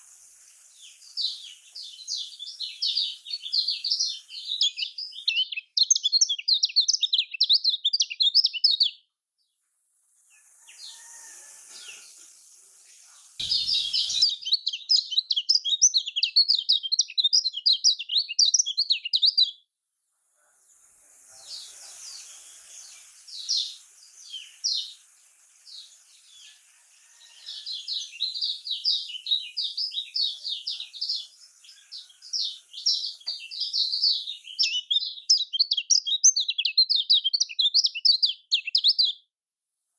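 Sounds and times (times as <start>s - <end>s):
bird high twittering song: 0.0s - 9.1s, 10.2s - 19.6s, 21.3s - 39.3s
faint bird chirps: 0.0s - 19.6s, 20.2s - 39.3s.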